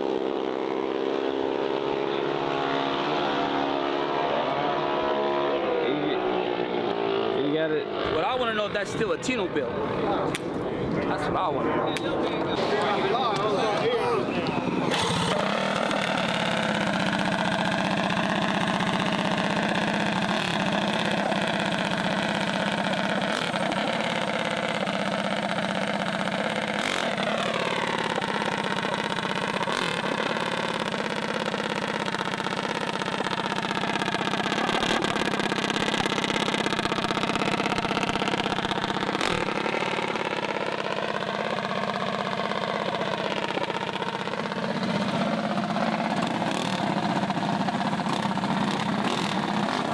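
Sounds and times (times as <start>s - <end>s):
mini bike engines idling: 6.6s - 49.9s.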